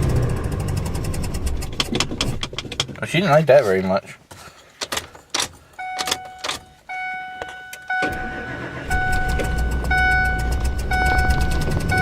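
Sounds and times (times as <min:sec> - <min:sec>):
truck engine starting and running: 0:00.0 - 0:02.9, 0:05.8 - 0:12.0
dashboard warning chime beeping: 0:05.8 - 0:12.0.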